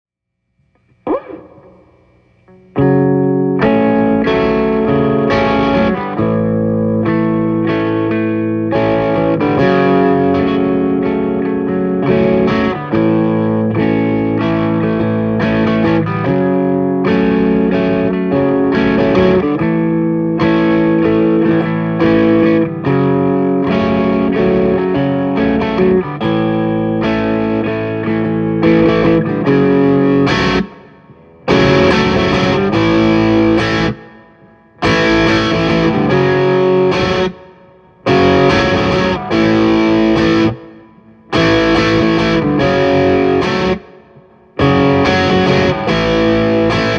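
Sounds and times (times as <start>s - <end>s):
distorted electric guitar chords: 0.6s - 46.9s.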